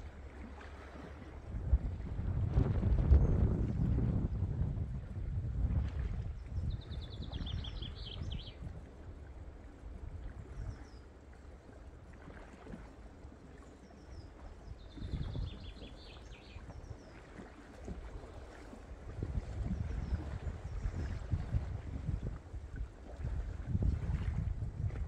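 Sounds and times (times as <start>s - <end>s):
moving water: 0.0s - 25.0s
wind rumble: 1.4s - 8.9s, 19.0s - 25.0s.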